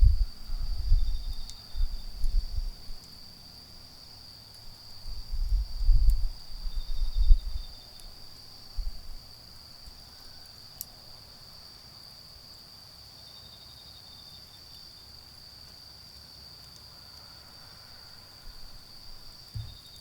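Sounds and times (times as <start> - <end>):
faint insect chirring: 0.0 - 20.0
insects trilling: 0.0 - 20.0
low thumps: 19.6 - 19.8.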